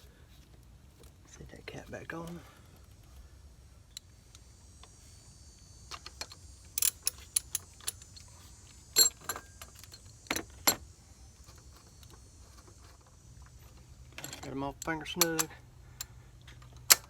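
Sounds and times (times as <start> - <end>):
metallic clinks of bolts: 5.9 - 8.3, 8.9 - 10.8, 14.1 - 17.0.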